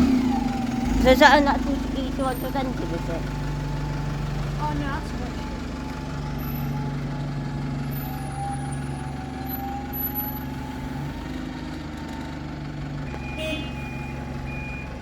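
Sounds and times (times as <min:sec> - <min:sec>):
diesel bus engine idling: 0:00.0 - 0:15.0
reversing alarm beeping: 0:04.6 - 0:12.4, 0:13.0 - 0:15.0.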